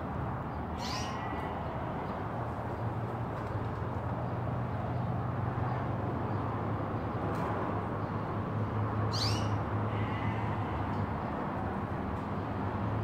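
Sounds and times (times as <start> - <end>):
small bird chirp: 0.8 - 1.2, 9.1 - 9.6.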